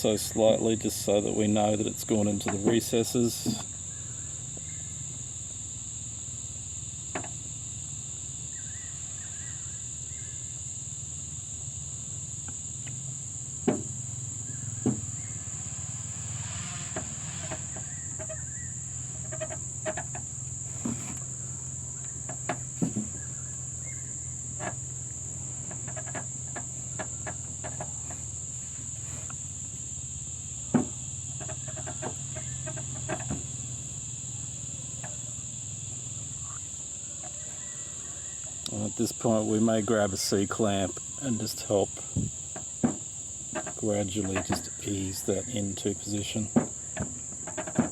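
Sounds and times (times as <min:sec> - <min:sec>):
clicks and knocks of brake parts: 0:30.6 - 0:33.7, 0:46.5 - 0:47.9.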